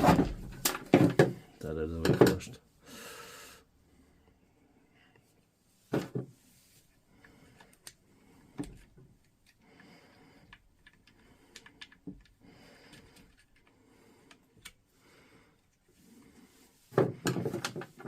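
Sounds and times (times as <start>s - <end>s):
loud knocks of tool parts: 16.9s - 18.0s.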